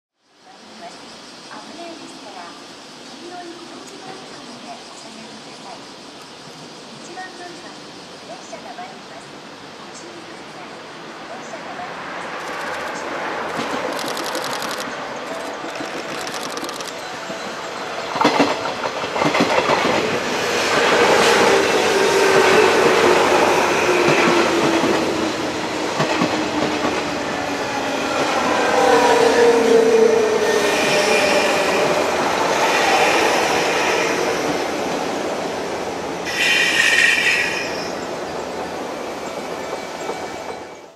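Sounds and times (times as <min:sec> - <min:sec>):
train rumble: 0:01.5 - 0:40.9
train wheels clacking over rail joints: 0:12.4 - 0:21.5
high wheel squeal: 0:27.7 - 0:34.5, 0:36.3 - 0:38.4.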